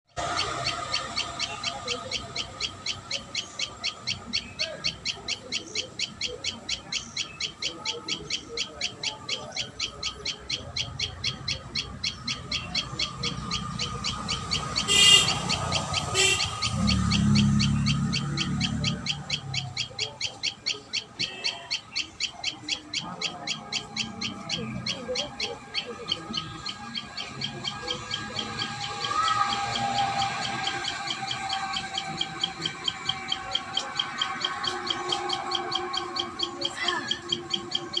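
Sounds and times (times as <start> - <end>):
high bird call: 0.2 - 38.0.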